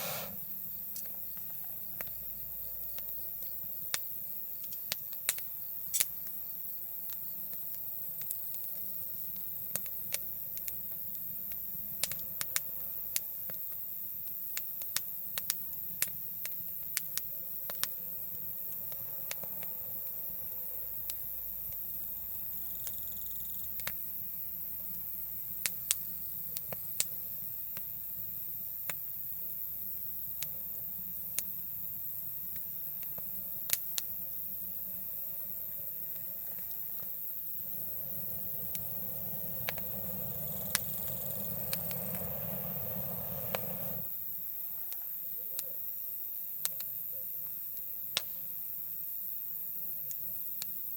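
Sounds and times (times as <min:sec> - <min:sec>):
campfire crackling and popping: 0:00.0 - 0:23.0, 0:23.7 - 0:28.0, 0:32.3 - 0:44.2
insects hissing: 0:00.0 - 0:50.9.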